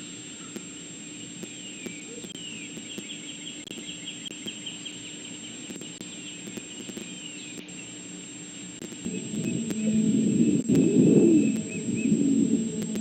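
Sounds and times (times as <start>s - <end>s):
low electrical hum: 0.0s - 13.0s
loud low rumbling: 9.0s - 13.0s.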